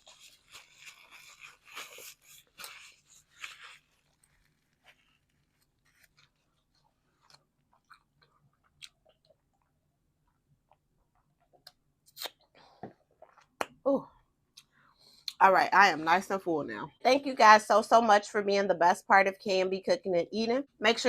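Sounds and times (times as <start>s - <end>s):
person biting and chewing: 0.0s - 9.7s, 11.4s - 12.5s.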